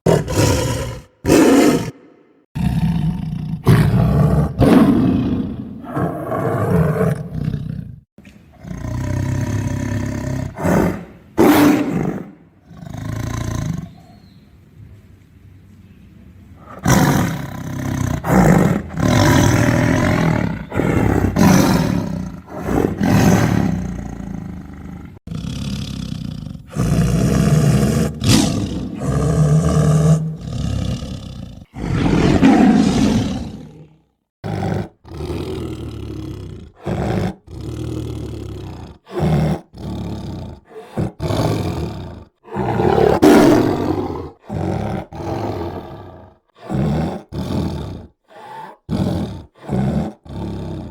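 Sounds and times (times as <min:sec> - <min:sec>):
tiger roaring and growling: 0:00.0 - 0:14.2, 0:16.6 - 0:50.9.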